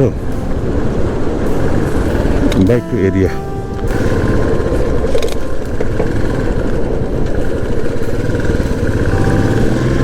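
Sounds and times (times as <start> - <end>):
motorcycle engine running: 3.9 - 10.0.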